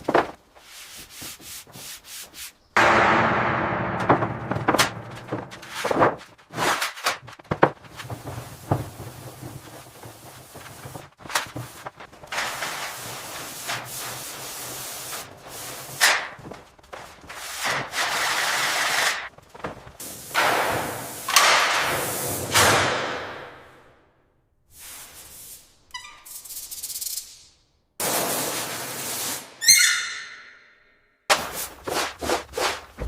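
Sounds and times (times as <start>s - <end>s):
knocks and thuds: 2.8s - 6.3s
scraping and rubbing: 3.7s - 15.7s, 31.4s - 33.0s.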